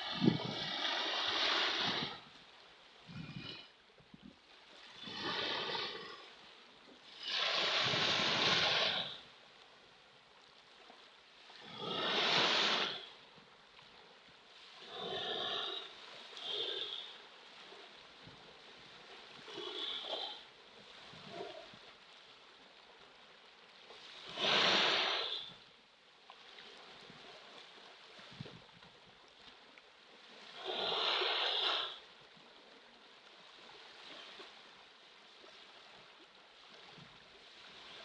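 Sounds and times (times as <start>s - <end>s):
ocean waves washing in: 0.0s - 9.5s, 10.8s - 13.4s, 14.0s - 23.2s, 23.8s - 25.6s, 30.1s - 32.1s.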